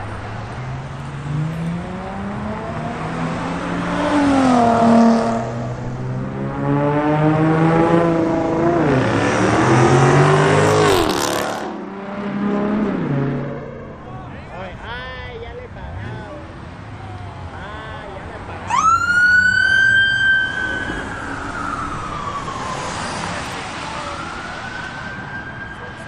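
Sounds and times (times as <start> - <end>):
car engine revving and accelerating: 0.0 - 14.0.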